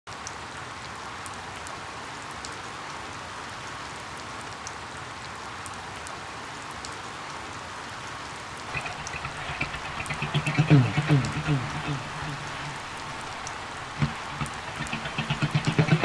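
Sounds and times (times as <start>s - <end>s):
steady rain falling: 8.7s - 16.0s.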